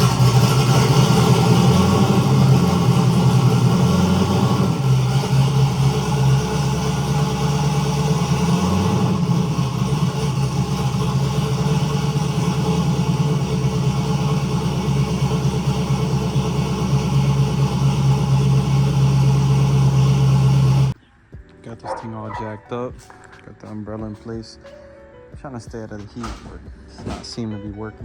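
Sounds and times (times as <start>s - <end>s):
car engine running steadily: 0.0s - 21.0s.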